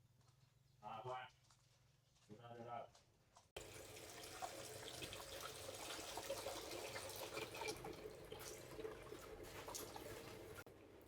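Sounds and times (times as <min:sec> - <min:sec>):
water running and splashing: 0:03.6 - 0:10.6.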